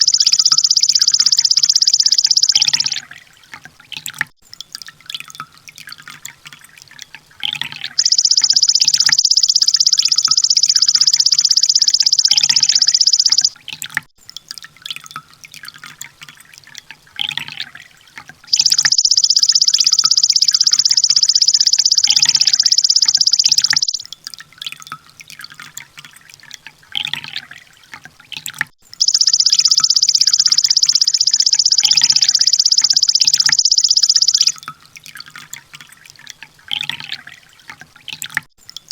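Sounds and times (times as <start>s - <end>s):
short bird chirps: 0.0s - 3.0s, 8.0s - 13.5s, 18.5s - 24.1s, 29.0s - 34.6s
bird high-pitched rapid trill: 0.0s - 3.1s, 7.9s - 13.6s, 18.5s - 24.0s, 29.0s - 34.6s
drip-like ticks: 0.0s - 38.9s.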